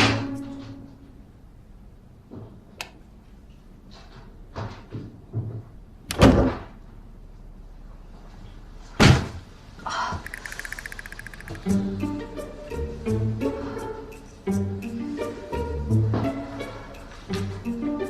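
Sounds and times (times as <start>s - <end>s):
sharp click: 10.2s - 11.7s.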